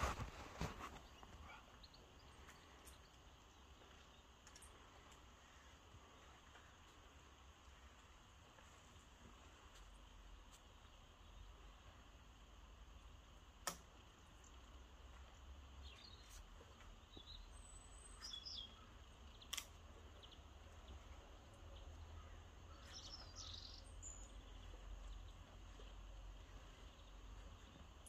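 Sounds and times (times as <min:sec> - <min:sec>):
faint bird chirps: 0:00.0 - 0:06.9, 0:15.8 - 0:28.0
sharp clicks: 0:19.4 - 0:19.9.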